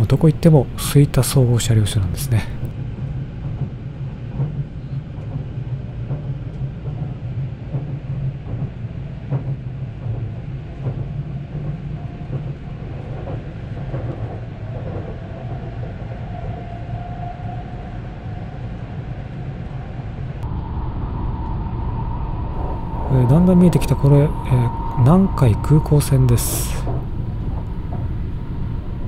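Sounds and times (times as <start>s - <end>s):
wheels rumbling on track: 0.0s - 17.0s, 17.7s - 29.0s
faint high whine: 20.4s - 29.0s.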